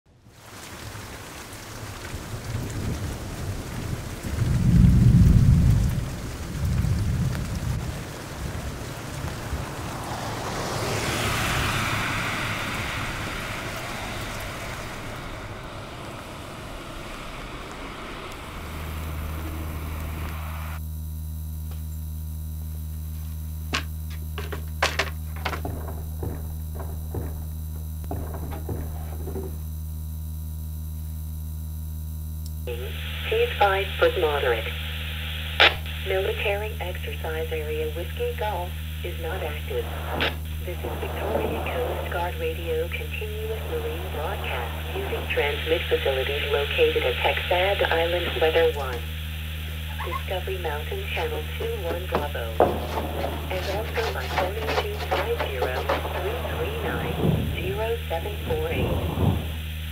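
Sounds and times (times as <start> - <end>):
heavy rain falling: 0.1 - 20.8, 23.7 - 29.9, 32.7 - 59.9
thunder rumbling: 0.2 - 20.8, 24.6 - 30.8, 35.6 - 59.9
electrical mains hum: 0.2 - 59.9
two-way radio crackles and clicks: 23.7 - 29.6, 32.5 - 59.9.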